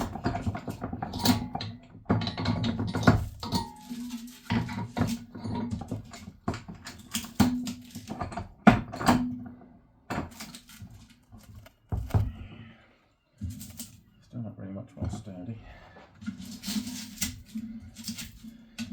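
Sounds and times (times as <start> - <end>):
metal tank knocks and clanks: 0.0 - 10.5.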